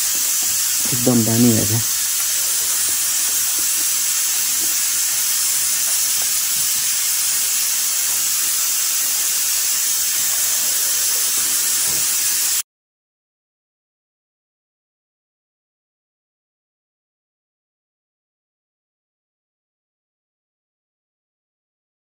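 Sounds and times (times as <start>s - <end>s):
meat sizzling in a pan: 0.0s - 12.6s.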